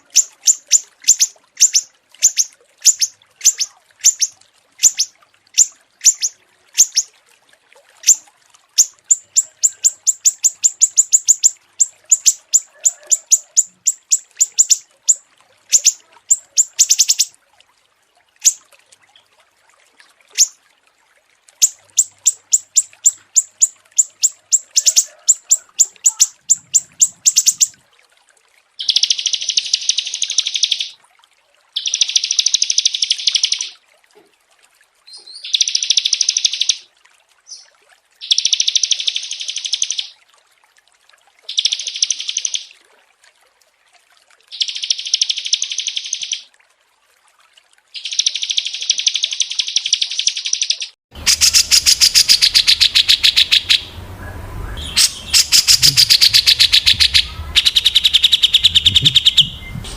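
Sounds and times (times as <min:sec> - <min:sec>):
buzzy bird trills: 0:00.0 - 0:07.1, 0:08.8 - 0:17.3, 0:21.6 - 0:27.8, 0:28.8 - 0:31.0, 0:31.8 - 0:33.8, 0:38.2 - 0:40.1, 0:41.5 - 0:42.7, 0:44.5 - 0:46.5, 0:48.0 - 0:59.9
sharp high bird chirps: 0:00.0 - 0:07.1, 0:08.8 - 0:17.3, 0:21.6 - 0:27.7, 0:28.8 - 0:31.0, 0:31.8 - 0:33.8, 0:38.2 - 0:40.1, 0:41.5 - 0:42.7, 0:44.6 - 0:46.5, 0:48.0 - 0:59.9.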